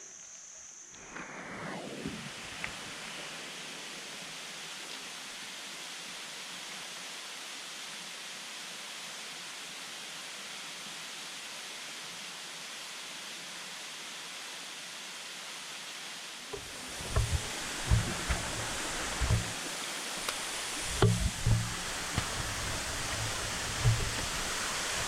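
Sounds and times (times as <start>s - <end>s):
waterfall rushing: 16.5s - 25.0s
short low thumps: 16.6s - 25.0s.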